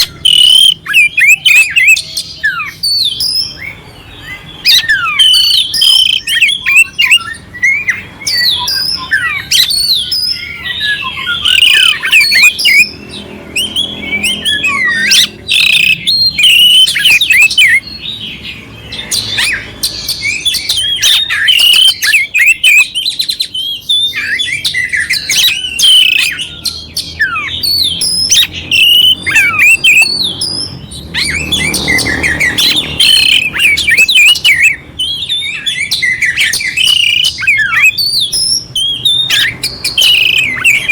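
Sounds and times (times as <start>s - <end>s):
bird harsh chattering: 0.0s - 40.9s
bird singing whistles: 0.0s - 40.9s.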